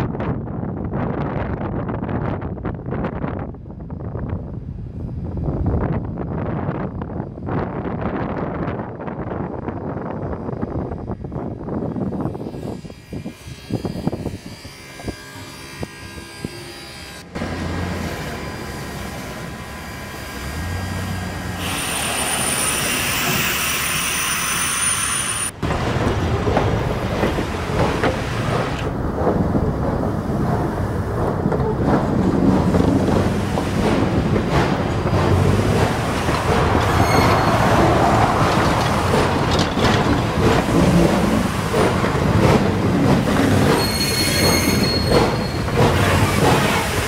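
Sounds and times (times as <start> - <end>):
train wheels rumbling and clattering: 0.0 - 47.0
high steady squeal: 21.6 - 25.6, 36.8 - 38.0, 43.7 - 45.8.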